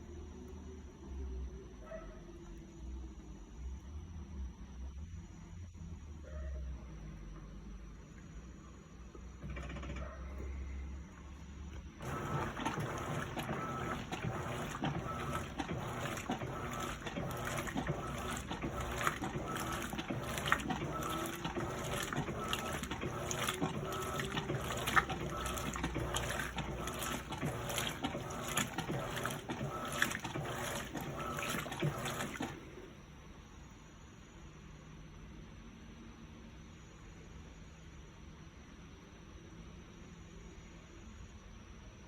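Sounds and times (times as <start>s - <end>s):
water splashing into washing machine: 11.8s - 32.9s.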